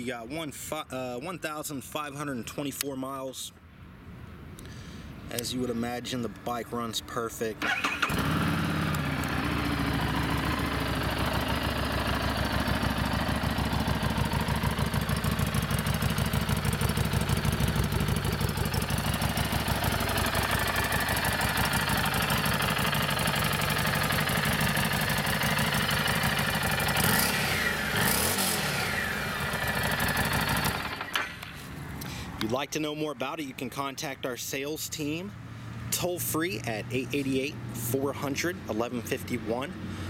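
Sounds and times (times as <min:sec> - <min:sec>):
motorcycle engine idling and revving: 0:07.6 - 0:31.6, 0:36.6 - 0:40.0.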